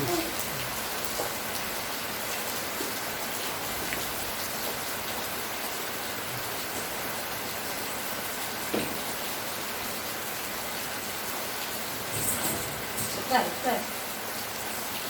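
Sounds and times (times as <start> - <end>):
raindrops ticking: 0.0 - 5.6
steady rain hissing: 0.0 - 15.0.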